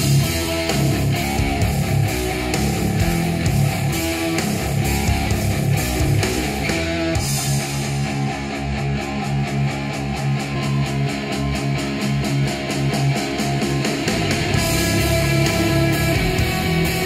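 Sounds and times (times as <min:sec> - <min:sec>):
rock music through a speaker: 0:00.0 - 0:17.0.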